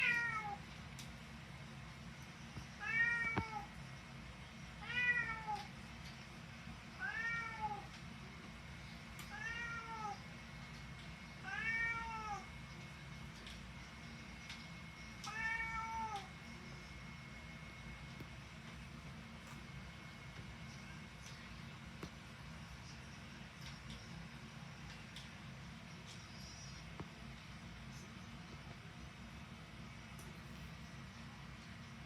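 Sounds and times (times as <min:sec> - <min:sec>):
cat meowing: 0:00.0 - 0:00.6, 0:02.8 - 0:03.7, 0:04.8 - 0:05.7, 0:07.0 - 0:07.9, 0:09.3 - 0:10.2, 0:11.4 - 0:12.5, 0:15.2 - 0:16.3.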